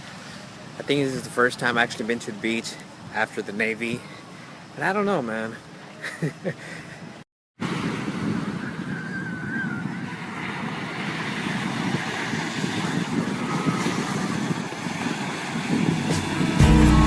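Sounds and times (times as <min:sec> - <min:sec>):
wind buffeting microphone: 0:07.6 - 0:16.8
beach surf: 0:07.6 - 0:17.0
short wavering whistle: 0:08.6 - 0:10.0
acoustic guitar music: 0:16.1 - 0:17.0.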